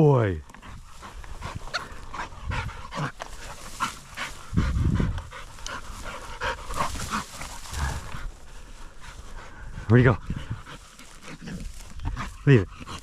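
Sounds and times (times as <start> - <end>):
dog panting: 0.5 - 13.0
low rumble: 0.7 - 11.0.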